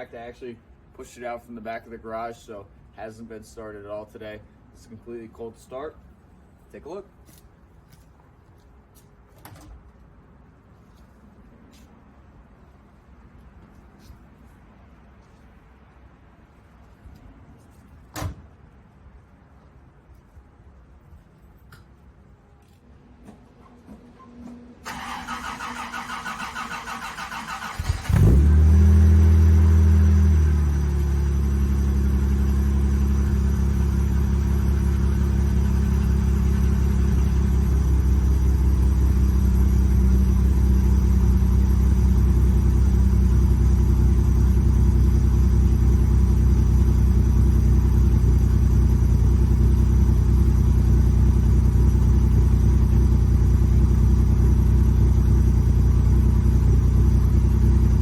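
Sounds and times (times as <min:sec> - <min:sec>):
car engine idling: 0:24.8 - 0:58.0
starter motor cranking: 0:24.9 - 0:28.5.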